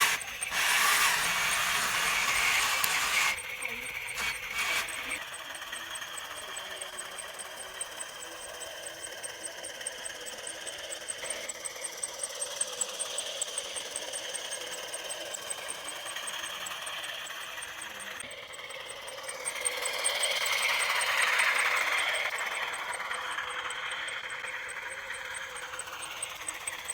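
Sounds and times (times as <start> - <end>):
small motor ticking: 0.0 - 26.9.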